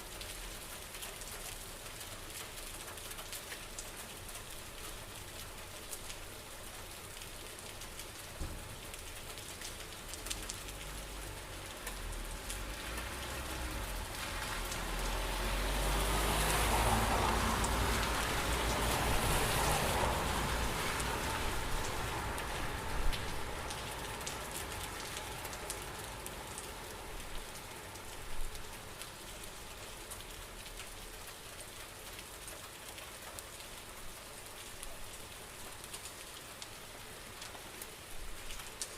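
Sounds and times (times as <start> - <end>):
louder raindrops: 0.0 - 38.9
steady rain falling: 0.0 - 38.9.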